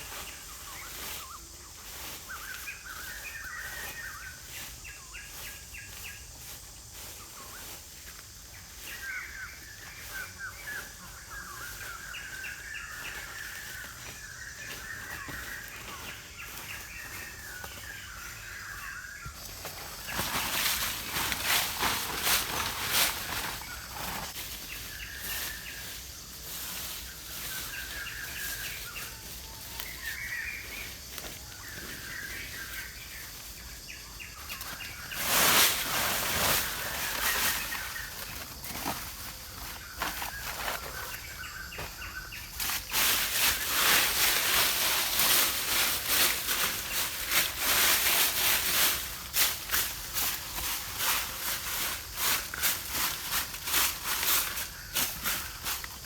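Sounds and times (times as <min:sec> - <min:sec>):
dry leaves and twigs crackling: 0:00.0 - 0:56.0
small birds chirping: 0:00.0 - 0:56.0
loud rustle: 0:19.6 - 0:25.6, 0:34.5 - 0:41.2.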